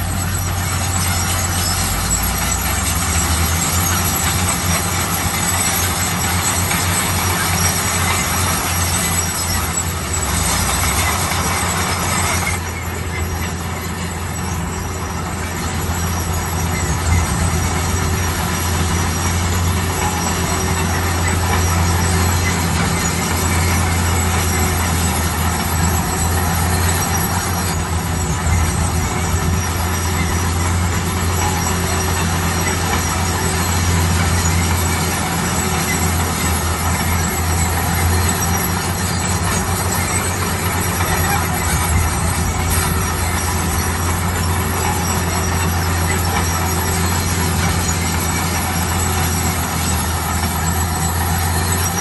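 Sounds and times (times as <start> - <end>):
bulldozer diesel engine droning: 0.0 - 52.0
grinding rumble: 0.0 - 52.0.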